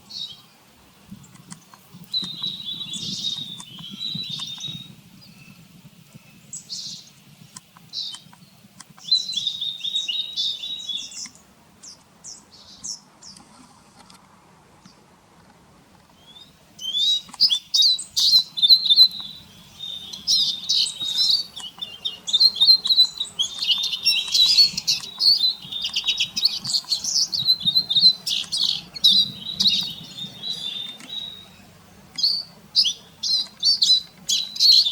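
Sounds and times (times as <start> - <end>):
siskin twittering: 16.2 - 34.9.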